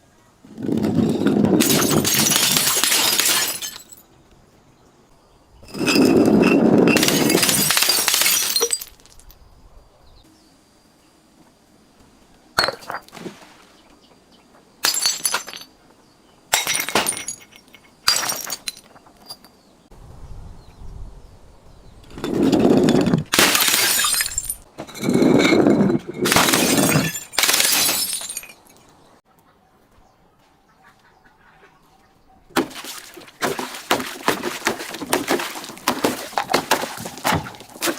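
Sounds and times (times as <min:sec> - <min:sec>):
glass breaking and crushing: 0:00.8 - 0:04.0, 0:05.7 - 0:09.3, 0:12.6 - 0:13.1, 0:14.8 - 0:15.7, 0:16.5 - 0:19.5, 0:22.1 - 0:28.9, 0:32.6 - 0:37.9.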